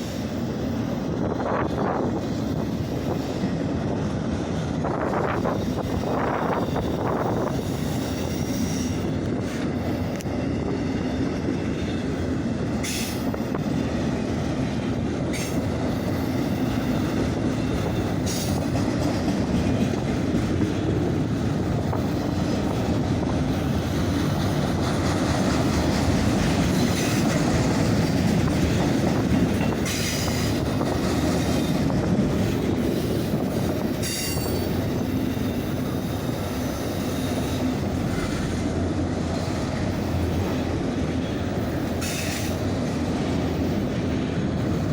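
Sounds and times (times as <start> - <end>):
rumble of train wheels: 0.0 - 44.9
high-pitched wheel squeals: 34.0 - 35.8.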